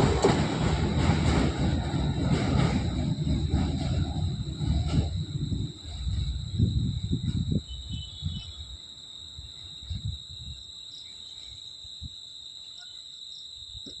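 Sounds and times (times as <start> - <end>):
low thumps: 0.0 - 8.4
train rumbling past: 0.0 - 9.1
crickets chirring: 0.0 - 14.0.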